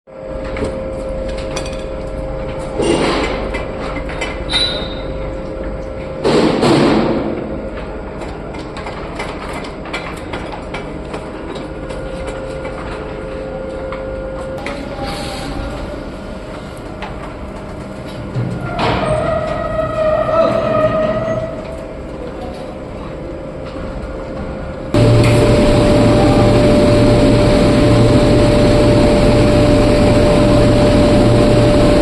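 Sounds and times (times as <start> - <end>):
machine hum with held tone: 24.2 - 32.0.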